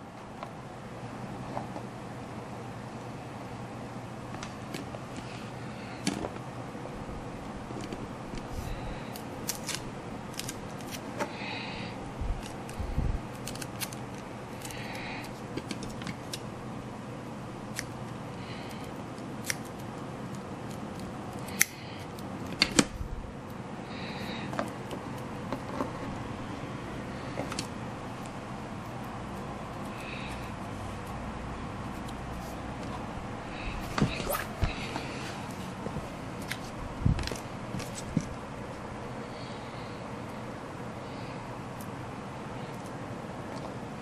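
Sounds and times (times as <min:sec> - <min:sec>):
steady low hum: 0:00.0 - 0:44.0
scissors snipping: 0:09.1 - 0:11.0, 0:12.4 - 0:16.4, 0:17.7 - 0:18.2, 0:19.4 - 0:22.9
sharp clicks and handling noises: 0:12.4 - 0:16.5.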